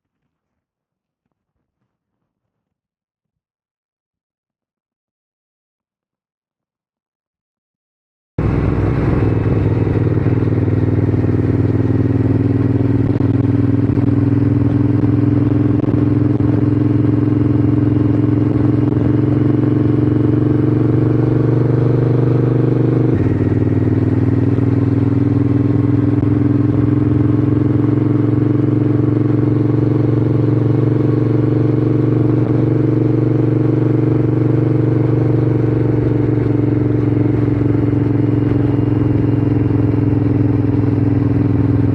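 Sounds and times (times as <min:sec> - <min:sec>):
motorcycle engine accelerating: 0:08.4 - 0:41.9.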